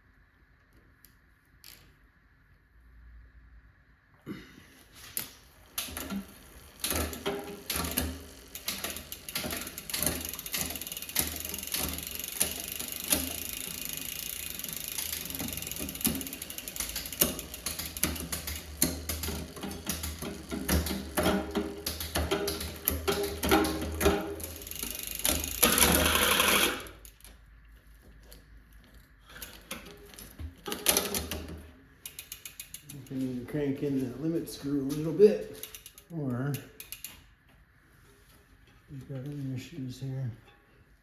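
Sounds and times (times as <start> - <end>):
bike chain rattle: 5.1 - 27.3, 28.9 - 37.3
bike chain ratcheting clicks: 5.2 - 27.3, 29.3 - 33.2, 34.9 - 37.3.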